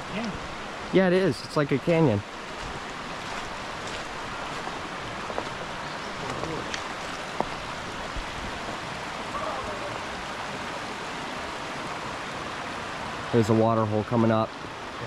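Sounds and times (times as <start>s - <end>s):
river flowing over rocks: 0.0s - 15.0s.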